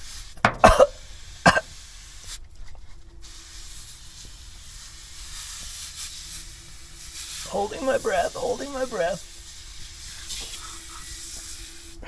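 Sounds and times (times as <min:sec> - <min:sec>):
aerosol can spraying: 0:00.0 - 0:02.4, 0:03.2 - 0:12.0.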